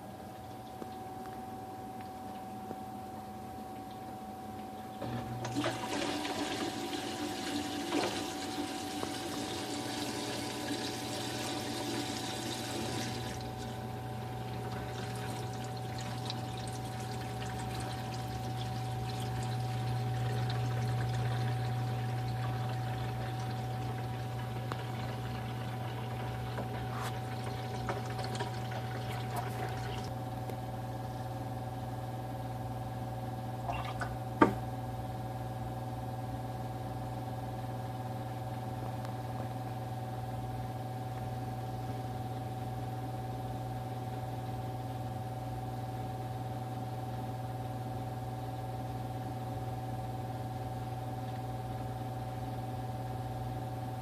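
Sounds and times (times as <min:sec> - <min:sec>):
drain water rushing through plumbing: 0:05.0 - 0:30.1
steady low hum: 0:08.6 - 0:54.0.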